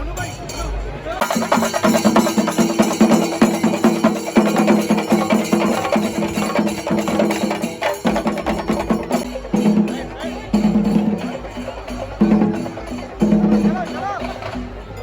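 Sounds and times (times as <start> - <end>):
held pitched melody: 1.2 - 15.0
quick drum strokes: 1.2 - 15.0.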